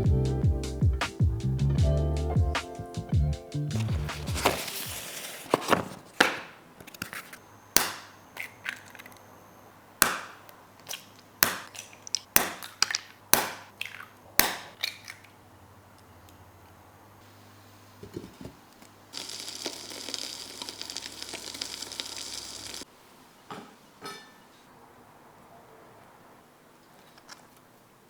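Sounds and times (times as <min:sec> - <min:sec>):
packaging rustling: 0:03.8 - 0:07.4
kitchenware clicks and knocks: 0:23.5 - 0:24.4.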